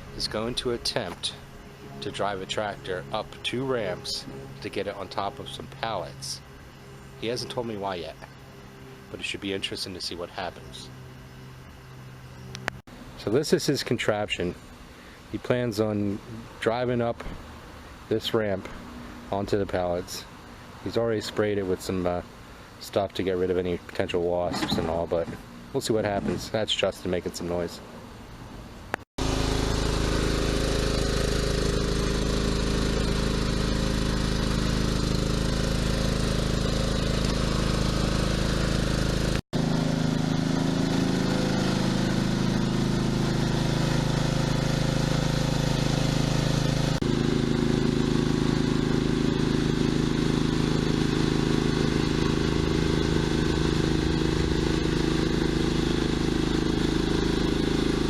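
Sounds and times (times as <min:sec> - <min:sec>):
tractor engine running: 0:00.0 - 0:13.6, 0:29.2 - 0:58.0.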